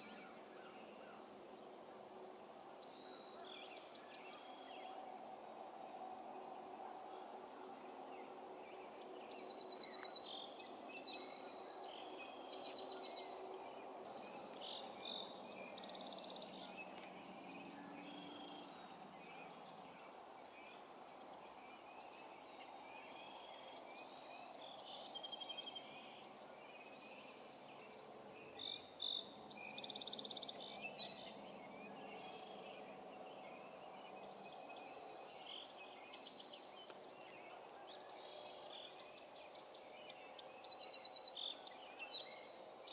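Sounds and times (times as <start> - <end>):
birds singing: 0.0 - 42.9
faint background noise: 0.0 - 42.9.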